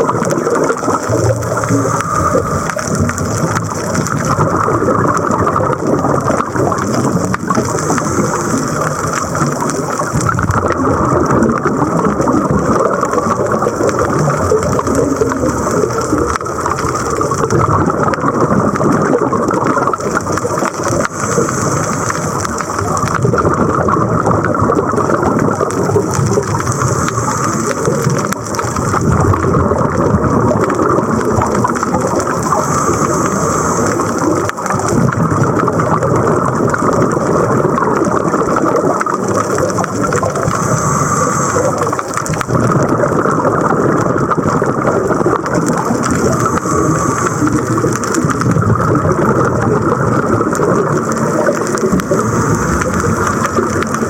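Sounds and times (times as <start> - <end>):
underwater rushing noise: 0.0 - 54.0
bright hiss: 7.5 - 10.0, 20.5 - 22.9, 25.9 - 29.1, 31.8 - 34.8, 39.7 - 42.3, 45.6 - 48.3, 51.1 - 54.0.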